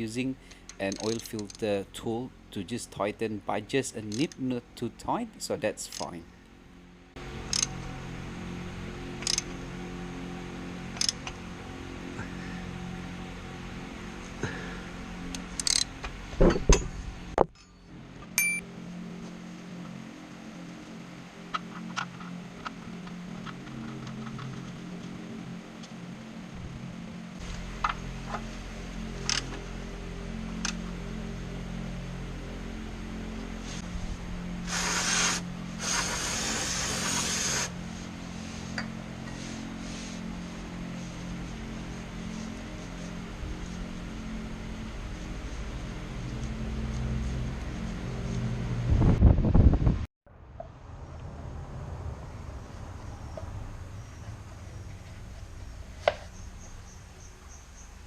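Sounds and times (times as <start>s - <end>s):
steady low hum: 0.0s - 58.0s
short metallic ring: 18.4s - 18.6s
hissing spray: 34.6s - 37.8s.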